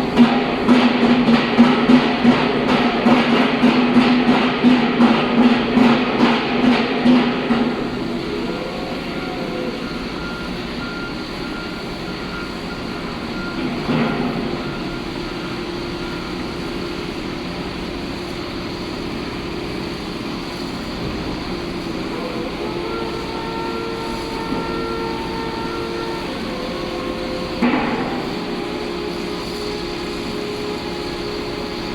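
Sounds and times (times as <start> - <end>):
diesel construction machinery running: 0.0 - 31.9
faint steady tones: 7.5 - 31.9.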